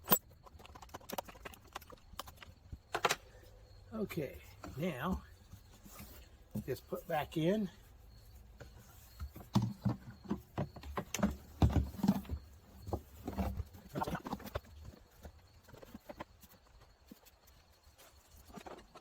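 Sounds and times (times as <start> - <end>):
hollow knocks of car parts: 9.1 - 14.6.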